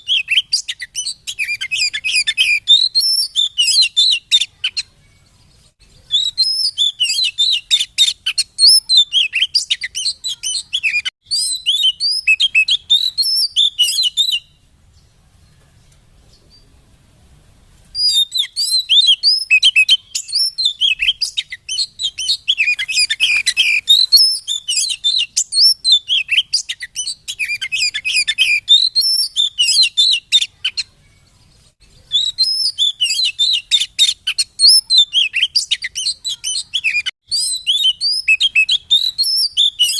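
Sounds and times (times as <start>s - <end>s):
songbird chirping and whistling: 0.0s - 16.8s, 17.9s - 39.9s.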